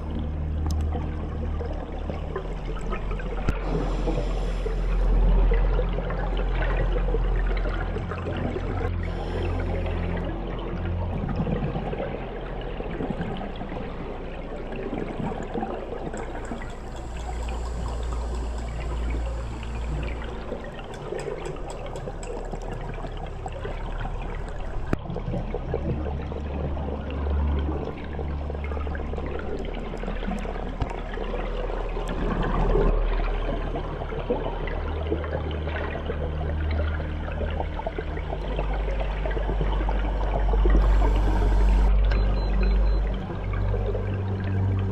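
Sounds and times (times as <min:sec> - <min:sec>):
low hum: 0:00.0 - 0:44.9
muffled underwater rushing: 0:00.0 - 0:44.9
faint ticks: 0:16.1 - 0:25.0.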